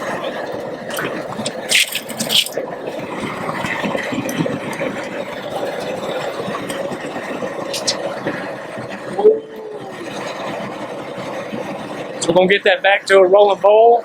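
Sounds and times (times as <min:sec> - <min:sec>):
propane burner roaring: 0:00.0 - 0:14.0
short sharp clatters: 0:00.9 - 0:02.6.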